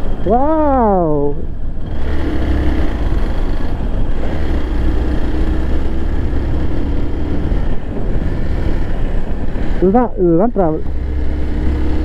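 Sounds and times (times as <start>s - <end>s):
motorcycle engine hum: 0.0s - 12.0s
wind rumble on microphone: 1.4s - 12.0s.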